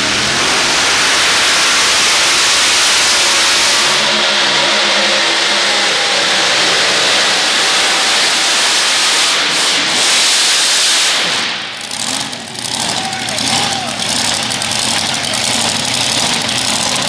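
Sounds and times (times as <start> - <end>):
tractor engine at full power: 0.0 - 17.0.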